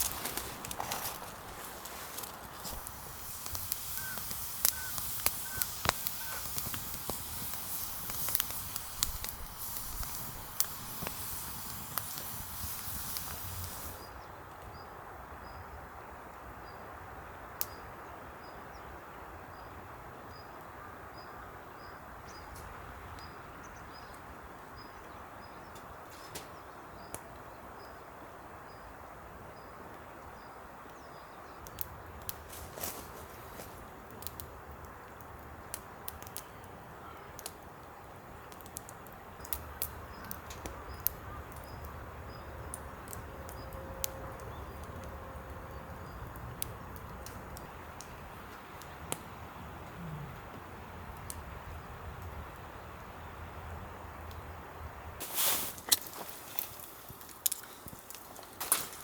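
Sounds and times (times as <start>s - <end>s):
rain pattering with drips: 0.0s - 14.8s, 16.2s - 59.0s
faint high chirp: 4.0s - 6.4s.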